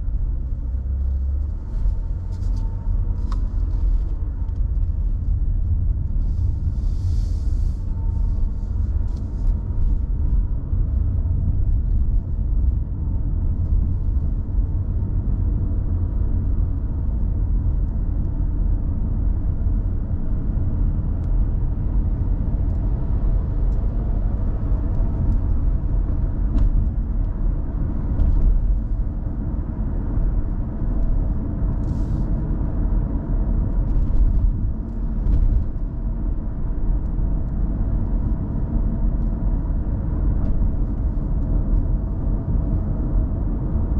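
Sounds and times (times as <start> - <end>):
car driving on road: 0.0 - 43.9.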